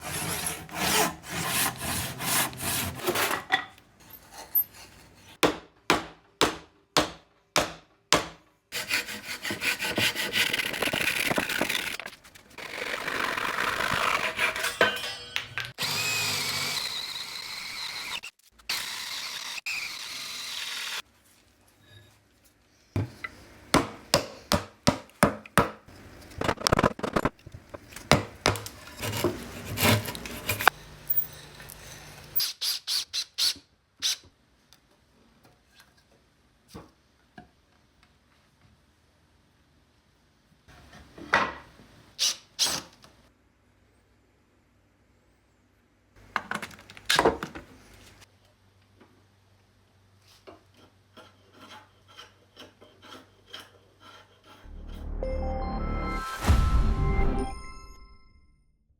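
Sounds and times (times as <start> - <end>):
wood shaving scraping strokes: 0.0 - 3.3, 8.8 - 14.8, 28.0 - 30.8, 50.8 - 54.7.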